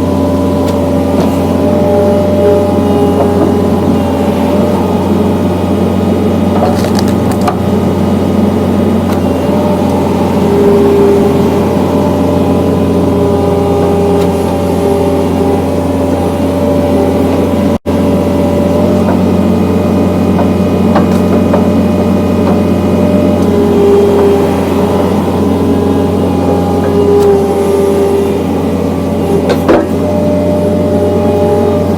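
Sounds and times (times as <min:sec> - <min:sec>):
diesel engine running: 0:00.0 - 0:31.9
hydraulic whine: 0:00.0 - 0:31.9.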